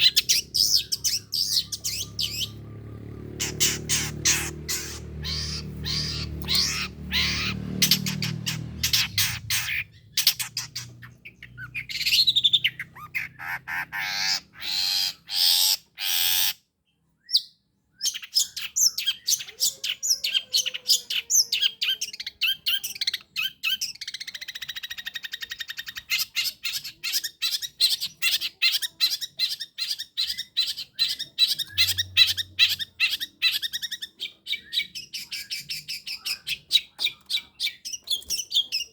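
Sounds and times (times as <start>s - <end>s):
shrike squawking song: 0.0s - 16.6s.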